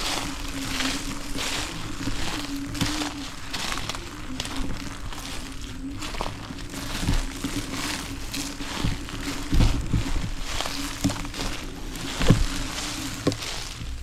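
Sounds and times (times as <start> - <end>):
electric motor hum: 0.0 - 14.0
tyres crunching on trail: 0.0 - 14.0
bike bumps: 6.0 - 14.0.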